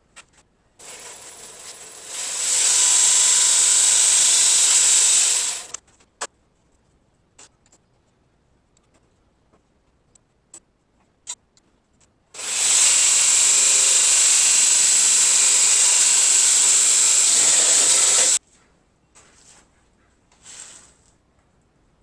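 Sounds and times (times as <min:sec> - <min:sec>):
power tool running: 0:00.8 - 0:05.8, 0:12.4 - 0:18.4.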